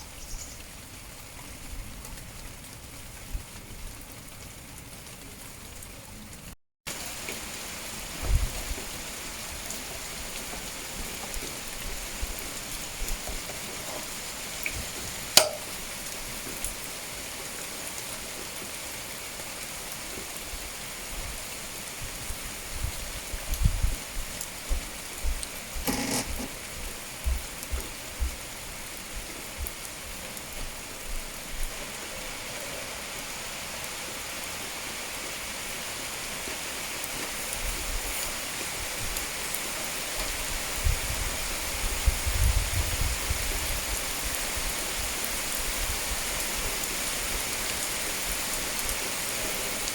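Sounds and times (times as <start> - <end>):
rain falling: 0.0 - 49.9
sharp click: 15.4 - 15.7.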